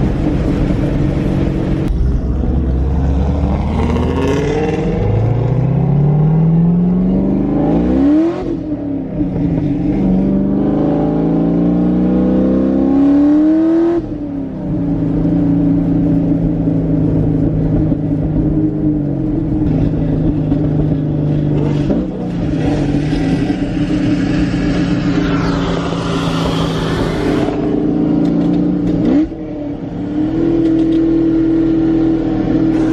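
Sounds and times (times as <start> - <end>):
car engine accelerating: 0.0 - 32.9.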